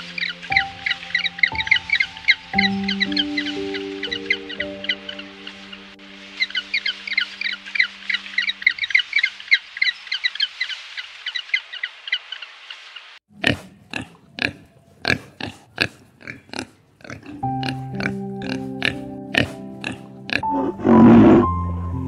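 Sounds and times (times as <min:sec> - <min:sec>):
background music: 0:00.0 - 0:09.3, 0:17.2 - 0:22.0
piglets grunting and squealing: 0:13.3 - 0:21.4.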